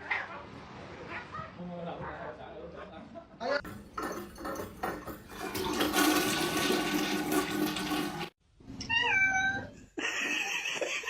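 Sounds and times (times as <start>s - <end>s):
toilet flushing: 3.6s - 8.4s.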